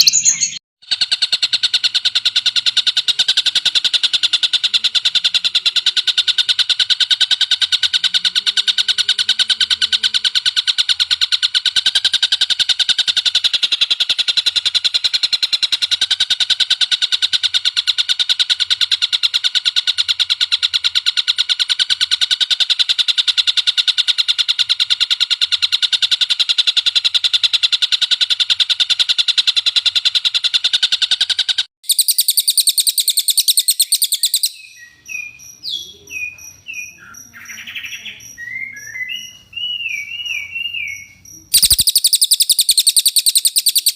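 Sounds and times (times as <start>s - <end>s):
bird chattering trill: 0.0s - 43.9s
high thin bird call: 31.8s - 43.9s.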